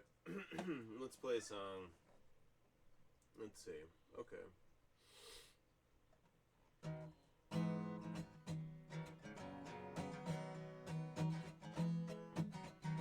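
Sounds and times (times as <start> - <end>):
acoustic guitar strumming: 6.8 - 13.0.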